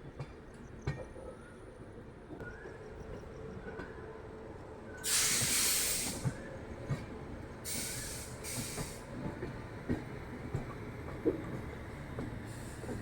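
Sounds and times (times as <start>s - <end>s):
air brakes hissing: 5.0s - 6.4s, 7.7s - 9.1s, 12.5s - 13.0s.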